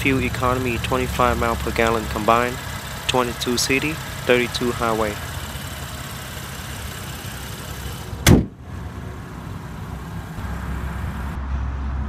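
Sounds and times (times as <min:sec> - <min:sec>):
car engine idling: 0:00.0 - 0:11.4
car door shutting: 0:04.6 - 0:10.4.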